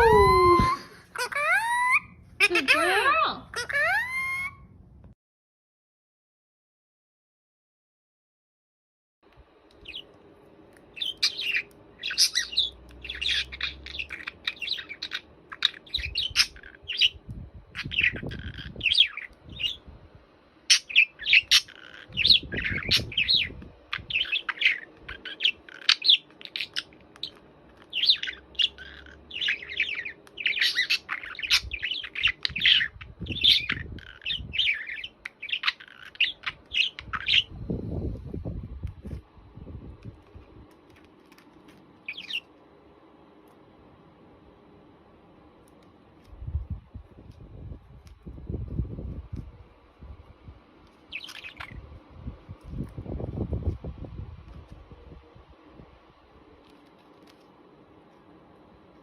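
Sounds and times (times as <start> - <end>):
bird chirping: 9.8 - 10.1, 10.9 - 19.8, 20.7 - 37.6, 42.0 - 42.5, 51.0 - 51.9.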